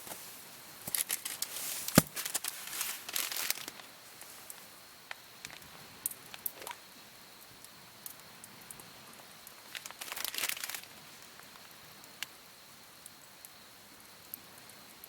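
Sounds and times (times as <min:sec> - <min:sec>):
wrapping rustling: 0:00.0 - 0:04.6, 0:09.7 - 0:10.9.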